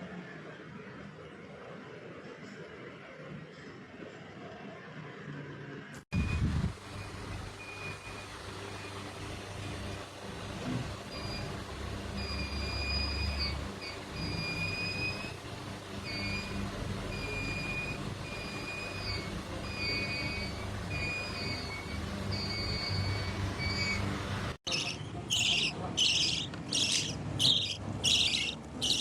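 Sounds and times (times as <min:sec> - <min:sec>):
high whistling tone: 0:16.0 - 0:24.1
parrot screeching: 0:24.7 - 0:29.0.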